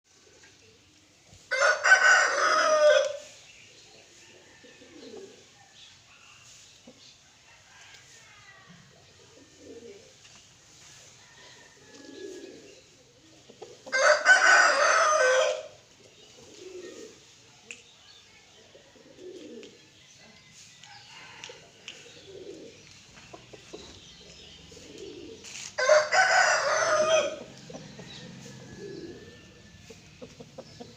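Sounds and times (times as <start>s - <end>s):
rooster crowing: 1.5s - 3.2s, 13.9s - 15.7s, 25.8s - 29.9s.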